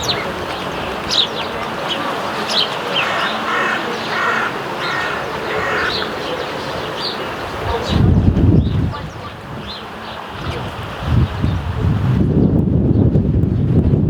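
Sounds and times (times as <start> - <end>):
sparrows chirping: 0.0 - 11.6
harsh lower bird calls: 1.0 - 10.2.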